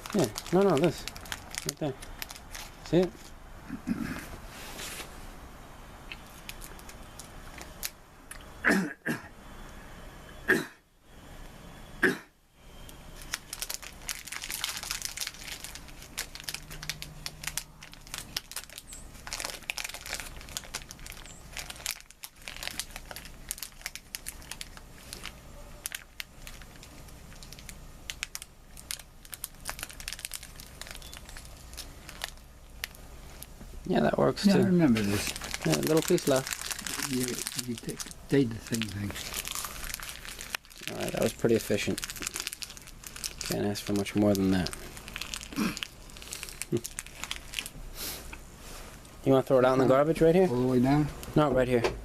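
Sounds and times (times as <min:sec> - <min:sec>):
snack wrapper crinkling: 0:00.0 - 0:03.4, 0:06.1 - 0:08.4, 0:12.9 - 0:33.6, 0:34.9 - 0:48.4.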